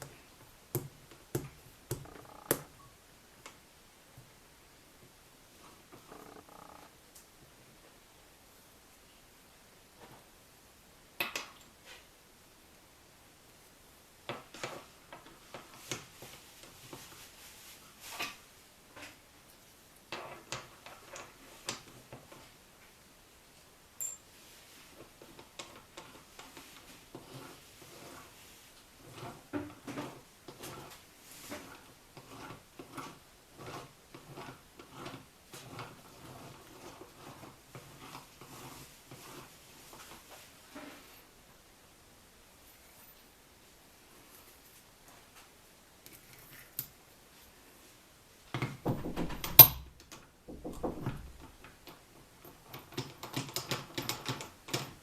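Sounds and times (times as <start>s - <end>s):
metal parts clinking: 24.0s - 24.2s.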